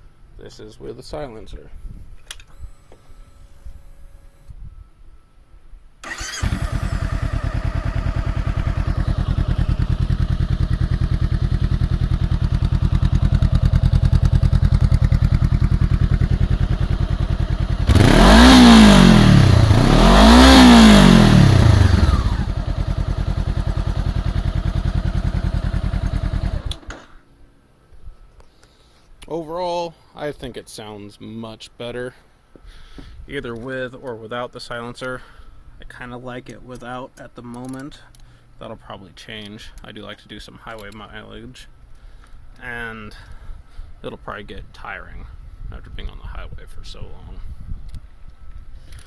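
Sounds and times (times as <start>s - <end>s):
motorcycle engine idling and revving: 6.1s - 27.0s.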